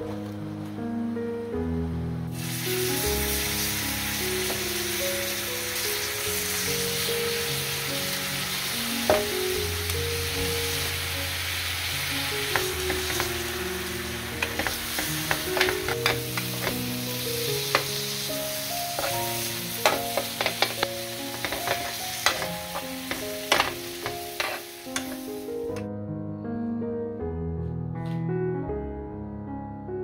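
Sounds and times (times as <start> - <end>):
soft background music: 0.0 - 30.0
ribs sizzling in grill pan: 2.3 - 25.7
metal tongs clicking on pan: 19.8 - 25.9.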